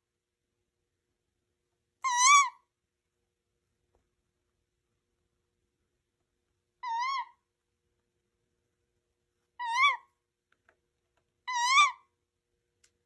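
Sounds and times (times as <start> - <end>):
owl calling high-pitched: 2.0 - 2.7, 6.8 - 7.5, 9.6 - 10.2, 11.4 - 12.2.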